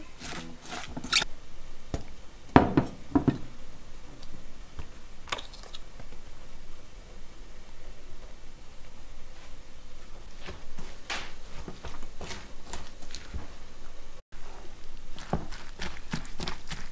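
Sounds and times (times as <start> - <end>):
cabbage rustling: 0.0 - 1.3, 9.4 - 16.9.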